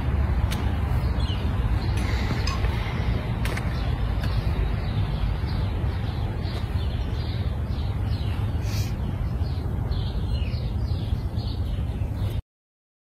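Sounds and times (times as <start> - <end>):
low outdoor rumble: 0.0 - 12.4
small birds chirping: 0.3 - 12.4.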